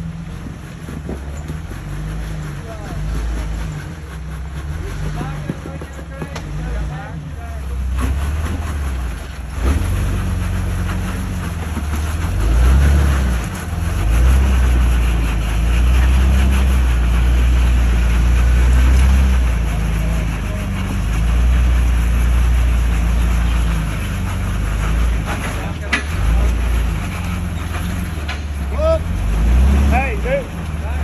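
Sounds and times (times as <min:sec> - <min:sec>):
engine running at low revs: 0:00.0 - 0:31.0.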